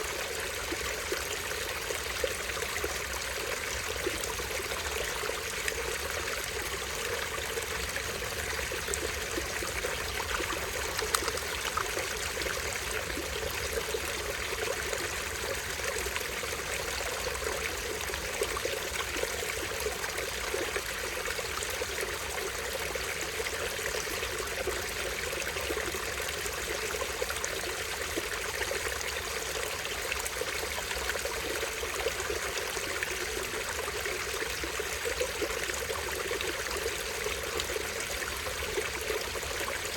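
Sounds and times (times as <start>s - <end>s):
stream water trickling: 0.0s - 39.9s
water splash: 10.6s - 12.0s.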